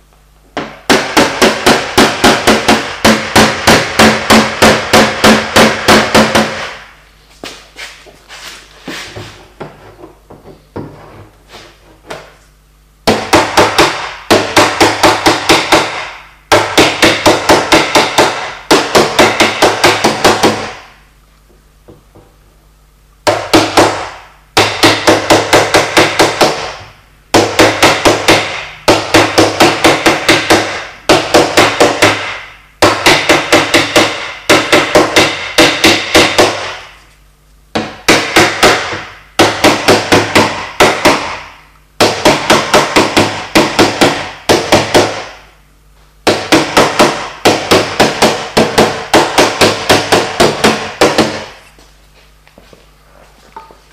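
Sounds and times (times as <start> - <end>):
hammer tapping on sheet metal: 0.6 - 6.8, 13.0 - 21.0, 23.2 - 36.9, 37.7 - 45.4, 46.2 - 51.6.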